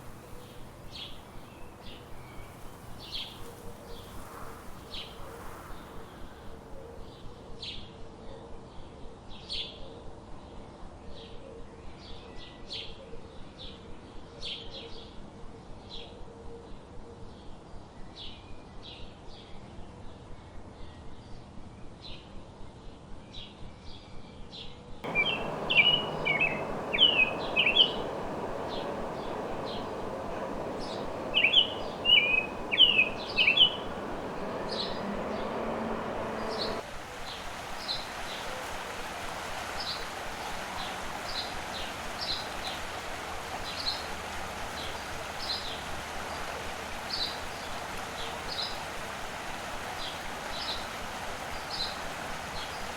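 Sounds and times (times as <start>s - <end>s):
songbirds chirping: 25.0s - 36.8s
background hiss: 25.1s - 36.8s.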